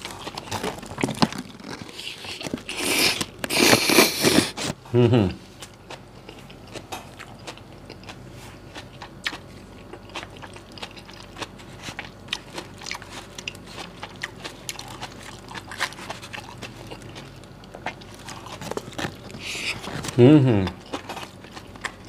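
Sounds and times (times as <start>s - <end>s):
chewing and mouth clicks: 5.6s - 22.0s.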